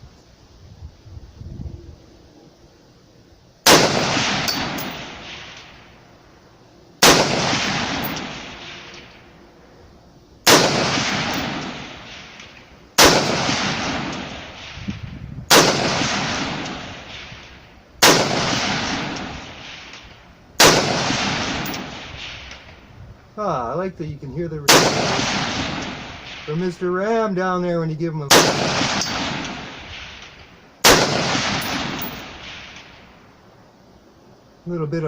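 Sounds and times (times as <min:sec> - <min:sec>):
rifle shots: 0:03.6 - 0:05.9, 0:07.0 - 0:09.2, 0:10.4 - 0:14.8, 0:15.5 - 0:20.0, 0:20.6 - 0:22.7, 0:24.7 - 0:26.7, 0:28.3 - 0:33.0
rolling echo: 0:03.7 - 0:06.0, 0:07.0 - 0:09.7, 0:10.5 - 0:22.9, 0:28.3 - 0:33.5
steel target ringing: 0:04.4 - 0:05.1.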